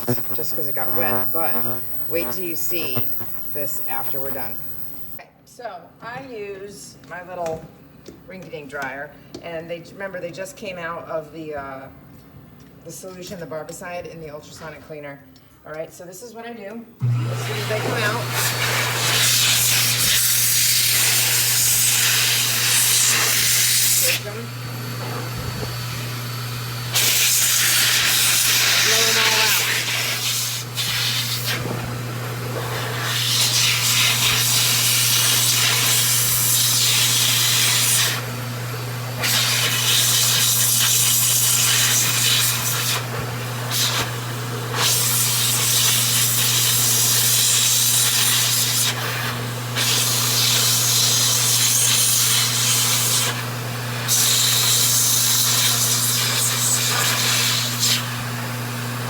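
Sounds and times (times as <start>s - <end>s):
low motor hum: 0.0s - 5.2s
pet dryer blowing air: 0.0s - 5.2s, 17.0s - 59.0s.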